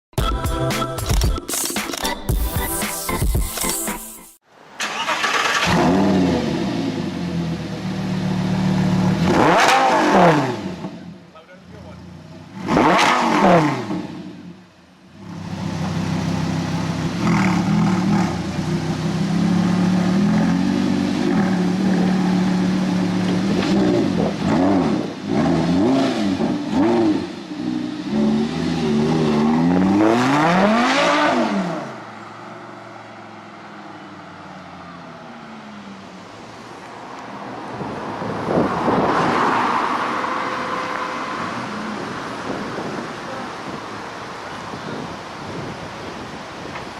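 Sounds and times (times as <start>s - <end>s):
sports car engine idling and revving: 5.6s - 46.9s.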